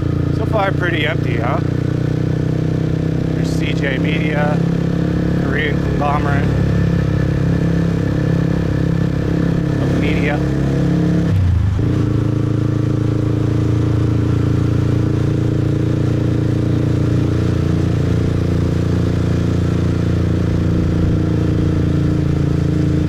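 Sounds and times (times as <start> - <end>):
motorbike engine running: 0.0 - 23.0.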